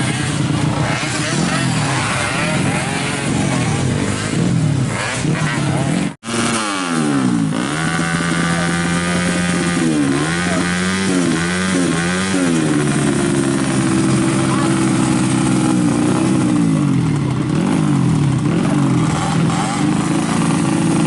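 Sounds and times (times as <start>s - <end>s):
racing motorcycle engines revving: 0.0s - 21.0s.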